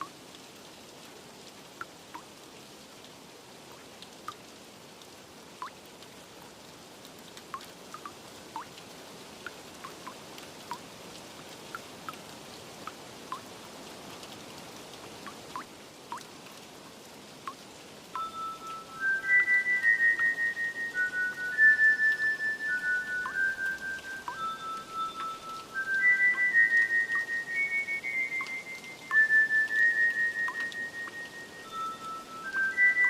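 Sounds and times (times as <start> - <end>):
rain hiss: 0.0 - 33.0
water drops plinking: 7.5 - 8.7, 15.3 - 16.3, 17.5 - 33.0
chime-like musical tone: 18.2 - 29.1, 30.3 - 33.0.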